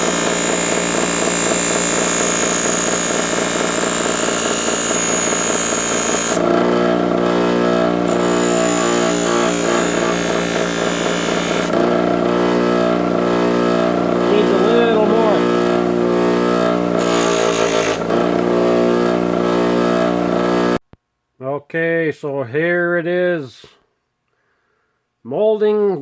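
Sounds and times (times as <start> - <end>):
power tool motor whining: 0.0 - 20.8.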